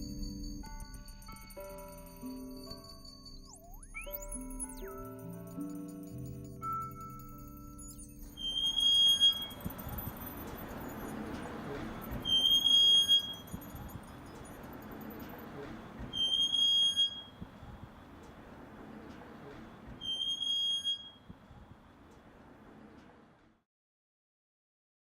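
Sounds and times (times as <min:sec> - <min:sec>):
wheel squeaking: 0:04.8 - 0:23.2.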